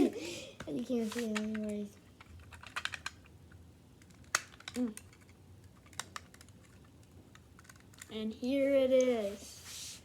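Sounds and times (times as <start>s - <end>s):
plastic bricks clicking together: 1.4s - 3.3s, 4.0s - 8.1s.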